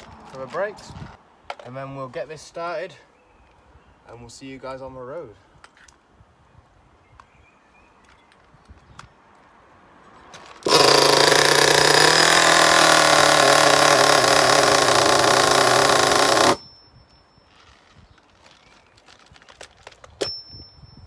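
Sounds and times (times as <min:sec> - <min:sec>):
nitro engine running buzzy: 0:10.7 - 0:16.6.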